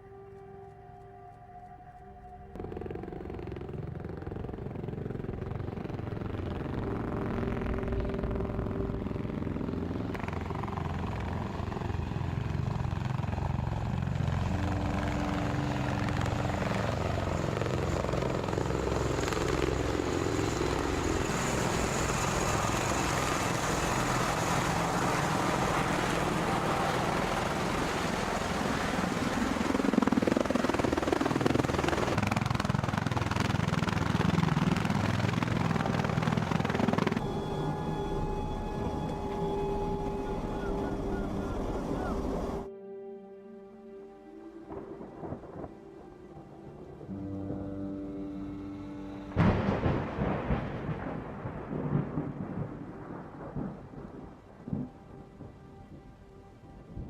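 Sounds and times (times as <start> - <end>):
jet engines running: 2.2 - 42.7.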